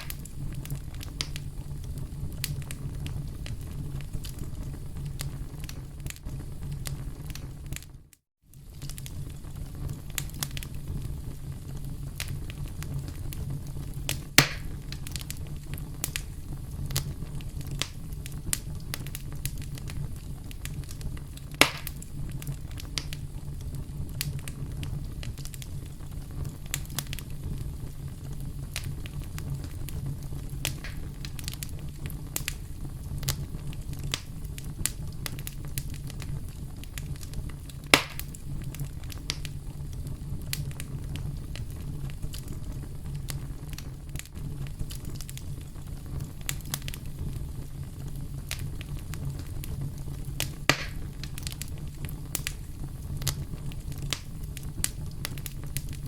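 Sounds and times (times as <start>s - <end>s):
campfire crackling: 0.0s - 56.0s
loud fire pops: 0.0s - 56.0s.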